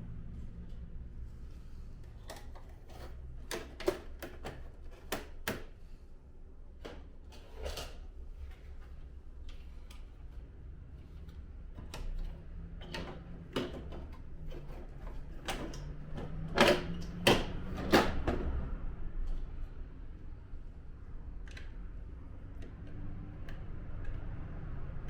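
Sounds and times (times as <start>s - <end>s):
plastic parts clicking and knocking: 2.1s - 5.8s, 11.7s - 18.5s.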